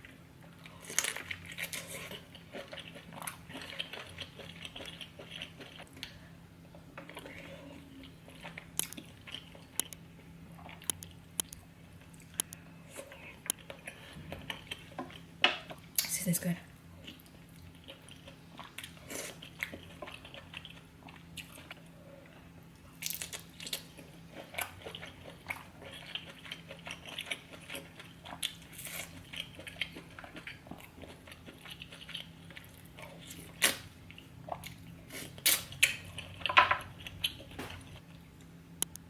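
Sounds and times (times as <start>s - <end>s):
wet chewing and biting: 8.3s - 10.0s, 10.6s - 15.3s
crab shell crunches and cracks: 8.6s - 10.0s, 10.8s - 11.6s.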